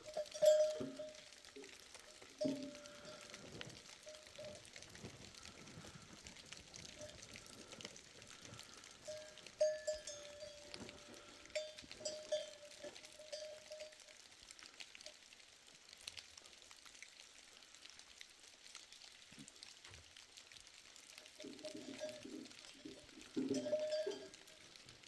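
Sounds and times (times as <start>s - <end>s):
livestock bells clinking: 0.0s - 14.1s, 21.4s - 24.8s.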